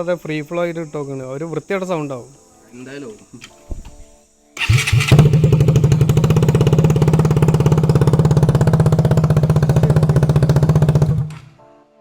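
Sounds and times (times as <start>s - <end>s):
motorcycle engine idling: 4.6s - 11.6s.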